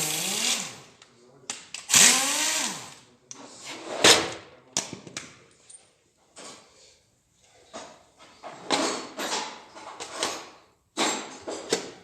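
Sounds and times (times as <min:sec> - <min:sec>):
power tool whining: 0:00.0 - 0:00.9, 0:01.9 - 0:03.0.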